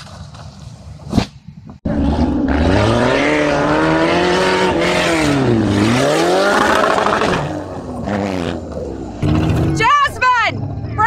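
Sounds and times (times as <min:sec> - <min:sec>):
vehicle engine revving hard: 0:01.9 - 0:09.9.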